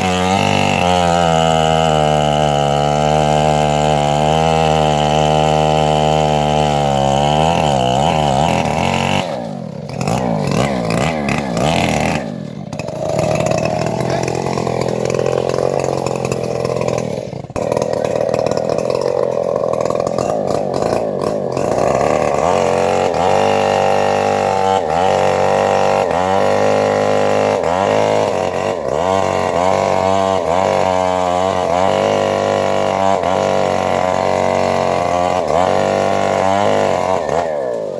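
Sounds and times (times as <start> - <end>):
bandsaw mill sawing log: 0.0 - 37.9.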